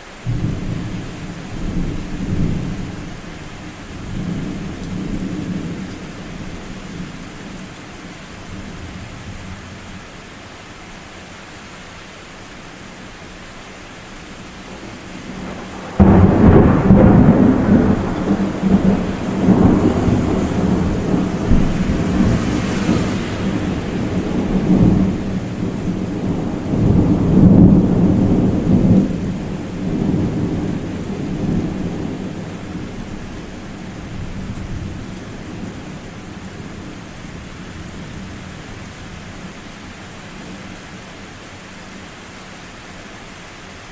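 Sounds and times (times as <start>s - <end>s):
thunder clap and rumble: 14.8s - 38.7s.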